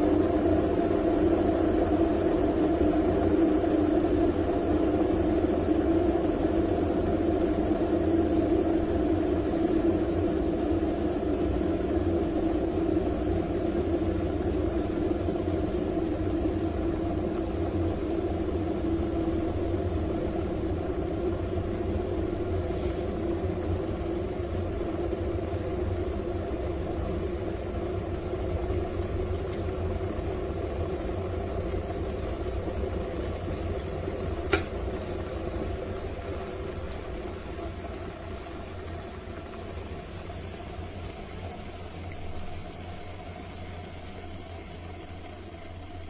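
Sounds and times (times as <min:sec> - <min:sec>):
kettle heating water: 0:00.0 - 0:46.0
kettle switch click: 0:34.5 - 0:34.7.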